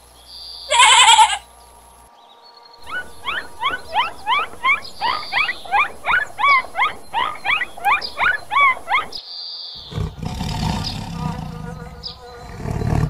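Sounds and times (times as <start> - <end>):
lion low call: 9.8 - 13.0.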